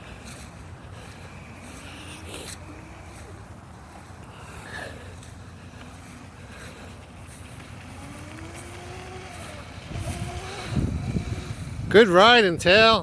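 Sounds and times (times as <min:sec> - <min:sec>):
electric motor whining: 0:07.5 - 0:11.9.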